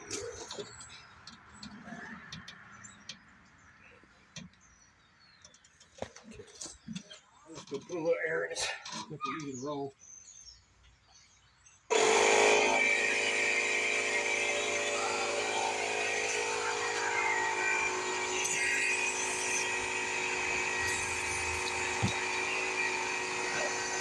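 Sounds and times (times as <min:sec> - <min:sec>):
air compressor running: 0:11.9 - 0:24.0.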